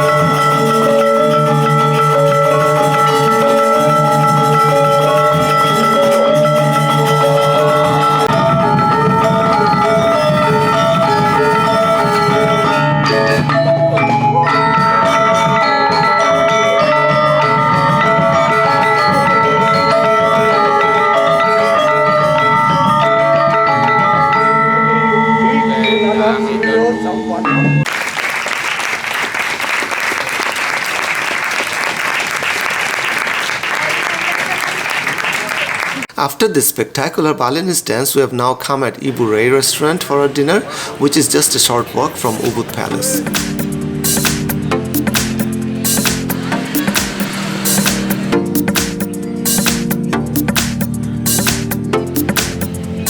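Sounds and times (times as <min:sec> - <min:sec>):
gamelan orchestra playing: 0:00.0 - 0:28.0, 0:40.7 - 0:53.0.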